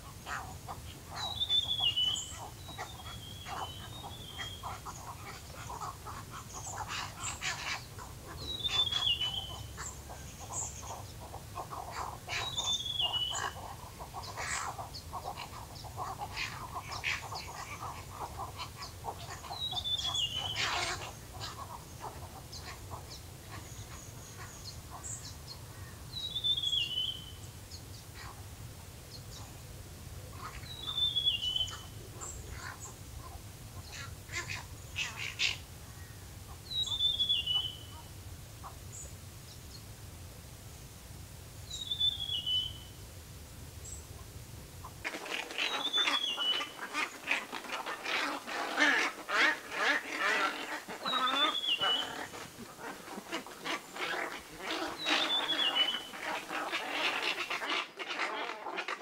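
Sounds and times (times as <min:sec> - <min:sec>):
birds chirping and clicking: 0:45.0 - 0:59.0.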